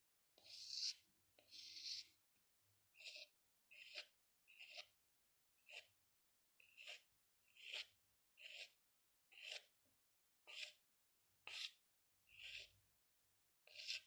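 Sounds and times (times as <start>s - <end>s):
pencil scratching on paper: 0.4s - 2.2s, 2.9s - 5.0s, 5.6s - 6.0s, 6.6s - 9.8s, 10.4s - 12.8s, 13.6s - 14.0s.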